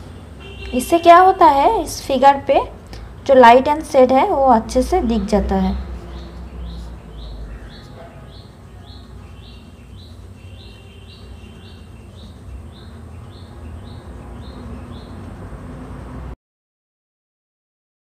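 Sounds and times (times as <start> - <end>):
small bird chirping: 6.0 - 15.4.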